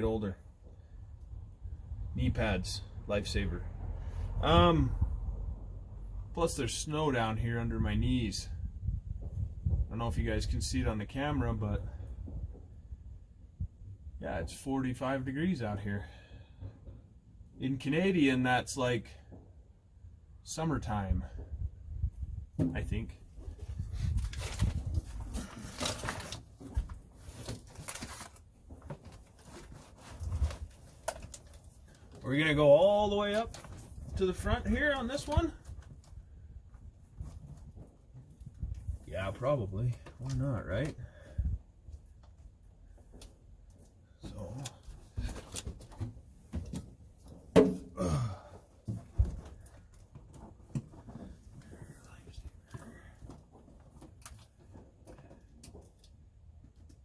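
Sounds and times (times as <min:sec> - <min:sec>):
sheets rustling and crinkling: 0:23.6 - 0:35.6
knocks on truck floor: 0:47.5 - 0:48.0.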